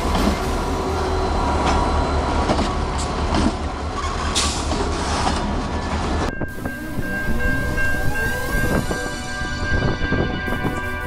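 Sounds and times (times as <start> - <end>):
diesel locomotives rumbling past: 0.0 - 11.0
rail and wheel noise: 0.0 - 11.0
steady high tone: 6.3 - 11.0.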